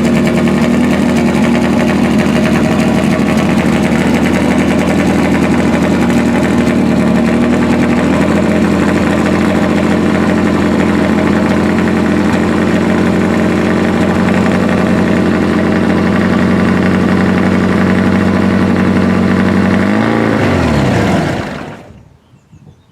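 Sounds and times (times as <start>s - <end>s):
car engine idling: 0.0s - 21.9s
engine winding down: 0.0s - 22.0s.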